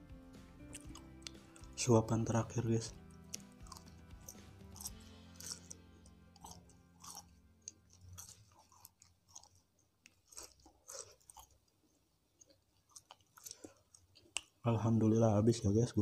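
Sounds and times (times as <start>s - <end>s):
wet mouth clicks: 0.6s - 1.8s, 12.4s - 14.6s
chewing crispy snacks: 0.6s - 14.6s.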